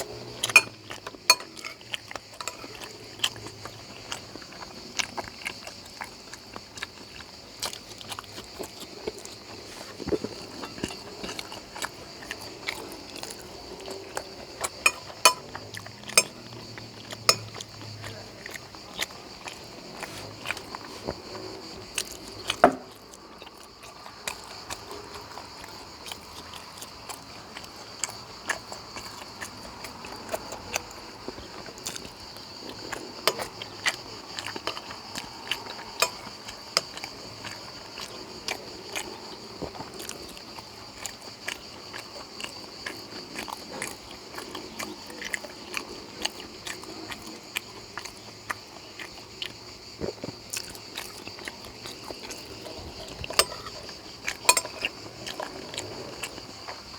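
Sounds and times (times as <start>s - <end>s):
chewing mouth sounds: 0.0s - 56.9s
cutlery tapping on a plate: 0.5s - 1.8s, 2.4s - 2.7s, 14.7s - 16.4s, 17.3s - 17.6s, 22.6s - 22.9s, 36.0s - 36.3s, 54.4s - 54.8s.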